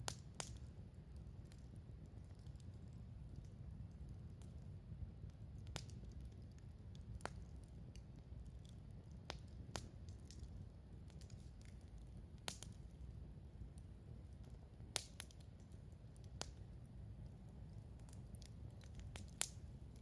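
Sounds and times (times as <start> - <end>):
campfire crackling and popping: 0.0 - 20.0
low rumble of flames: 0.0 - 20.0.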